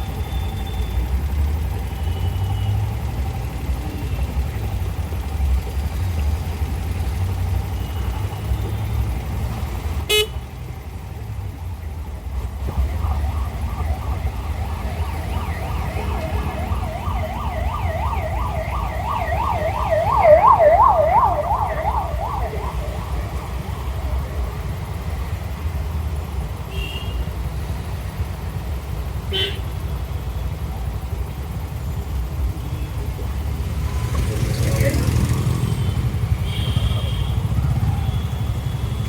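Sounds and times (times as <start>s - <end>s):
road rumble: 0.0s - 39.0s
wind: 0.0s - 39.0s
siren yelping: 12.4s - 24.8s.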